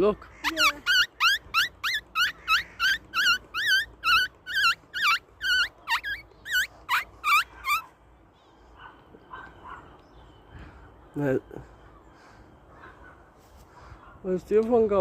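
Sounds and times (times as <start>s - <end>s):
squeaker high squeaks: 0.5s - 7.9s.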